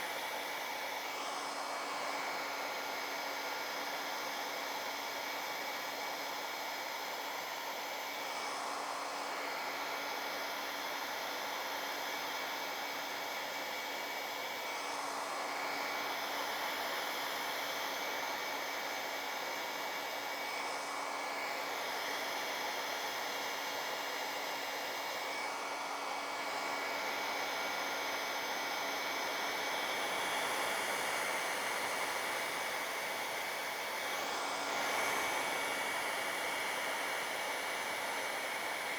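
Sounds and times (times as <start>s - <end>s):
hair dryer blowing air: 0.0s - 38.9s.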